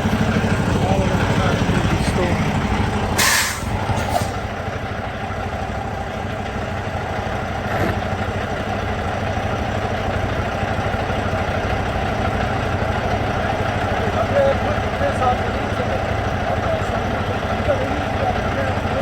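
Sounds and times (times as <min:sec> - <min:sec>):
vehicle engine idling: 0:00.0 - 0:19.0
brief hiss: 0:03.2 - 0:04.4.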